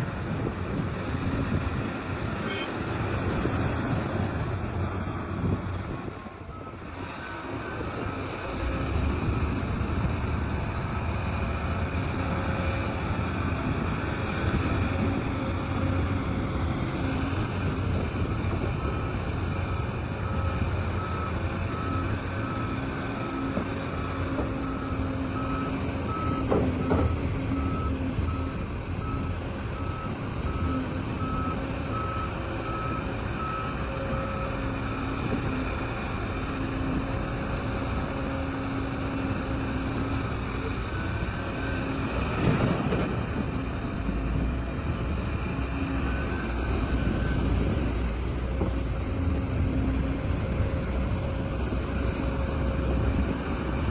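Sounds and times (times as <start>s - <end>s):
heavy diesel machinery running: 0.1s - 53.9s
reversing alarm beeping: 18.7s - 35.4s.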